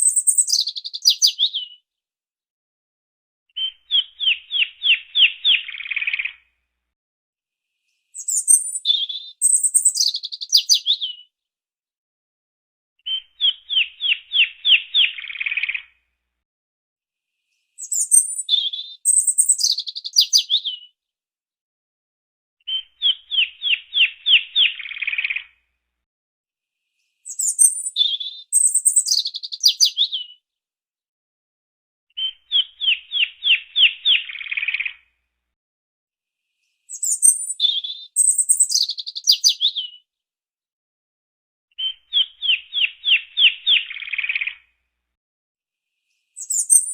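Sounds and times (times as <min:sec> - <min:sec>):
songbird singing: 0:00.0 - 0:01.8, 0:03.6 - 0:06.4, 0:08.2 - 0:11.3, 0:13.1 - 0:15.8, 0:17.8 - 0:20.9, 0:22.6 - 0:25.4, 0:27.3 - 0:30.4, 0:32.2 - 0:35.0, 0:36.9 - 0:40.0, 0:41.8 - 0:44.6, 0:46.4 - 0:46.9.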